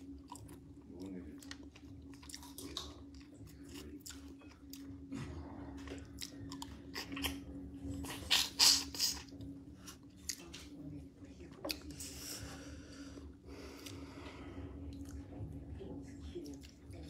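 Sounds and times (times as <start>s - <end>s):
steady low hum: 0.0s - 17.0s
crunchy chewing and biting: 0.2s - 10.5s.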